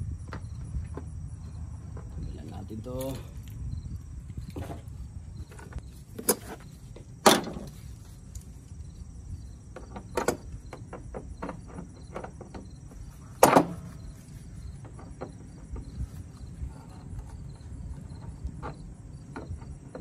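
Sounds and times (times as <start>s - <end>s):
hand tools clanking on car parts: 9.7s - 14.1s.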